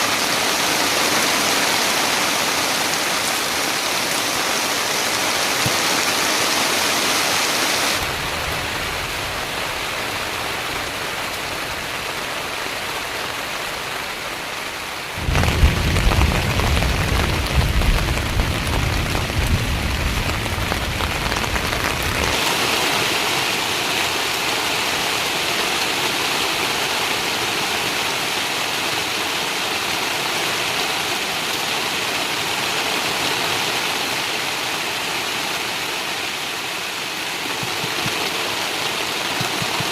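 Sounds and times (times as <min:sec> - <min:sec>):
rain hissing: 0:00.0 - 0:29.0.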